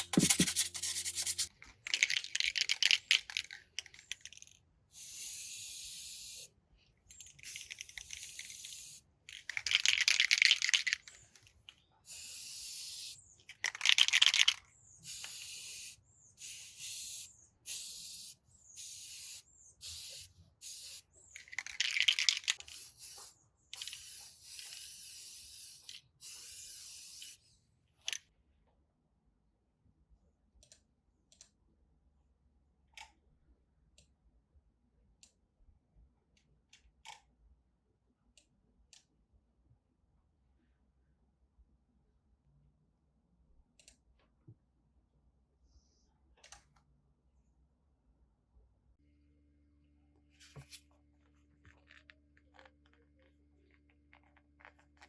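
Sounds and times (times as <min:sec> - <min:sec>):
pressurised spray hissing: 0:00.0 - 0:01.5, 0:12.1 - 0:13.2.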